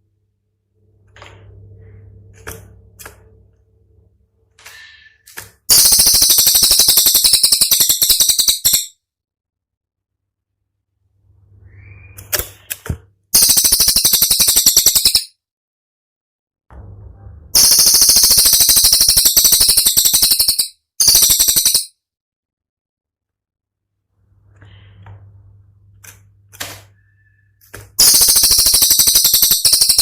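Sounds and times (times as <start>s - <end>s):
faint low hum: 0.0s - 4.6s, 16.7s - 17.6s, 24.1s - 28.0s
weak bird chirps: 4.7s - 8.9s, 11.4s - 12.7s, 13.4s - 15.3s, 17.6s - 21.9s, 27.0s - 30.0s
songbird rattling trills: 5.7s - 8.9s, 13.4s - 15.3s, 17.6s - 21.9s, 28.0s - 30.0s.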